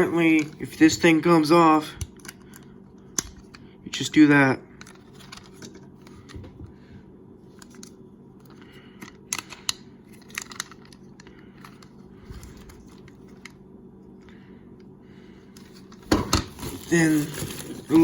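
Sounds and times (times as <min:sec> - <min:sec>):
packaging rustling: 0:15.6 - 0:18.0.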